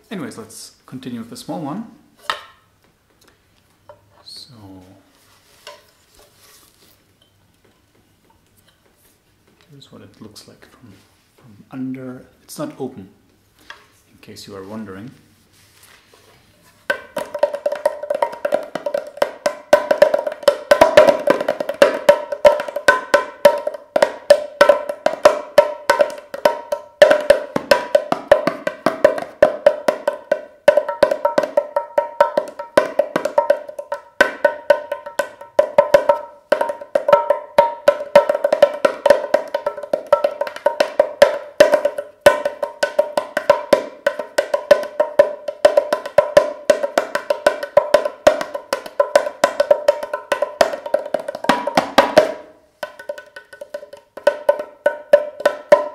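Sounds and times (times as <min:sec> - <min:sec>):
clay drum played with fingers: 0:16.8 - 0:55.9.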